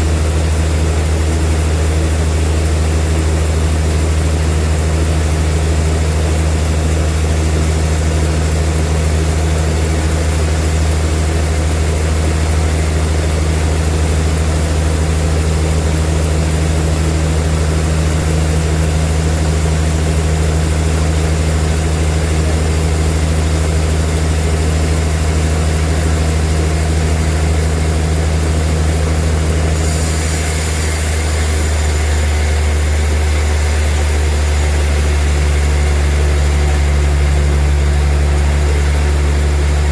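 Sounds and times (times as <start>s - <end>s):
bandsaw machinery humming: 0.0s - 39.9s
high hiss: 29.7s - 37.0s.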